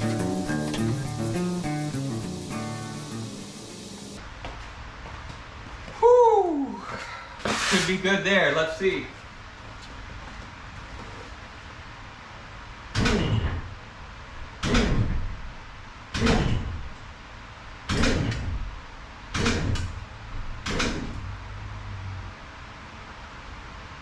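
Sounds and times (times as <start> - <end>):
car jack creaking: 0.0 - 4.2, 19.3 - 21.4.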